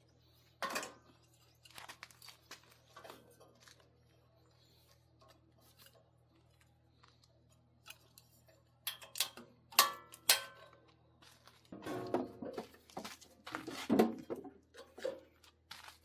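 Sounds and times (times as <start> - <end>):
sharp metal clanks: 8.9 - 10.6.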